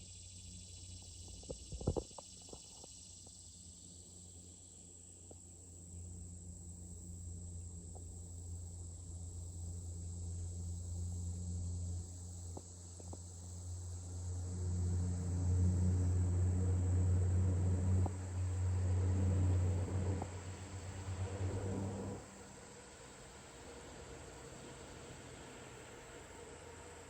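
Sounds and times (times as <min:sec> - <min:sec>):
insects chirring: 0:00.0 - 0:27.0
low steady rumble: 0:05.9 - 0:27.0.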